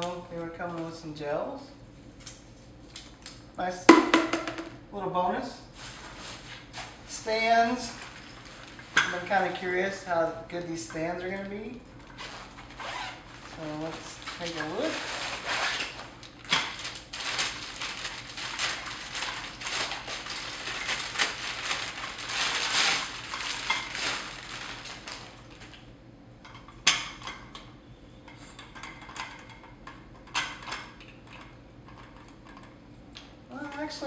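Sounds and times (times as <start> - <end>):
sharp knock: 3.9 - 4.7
rustling: 11.8 - 25.7.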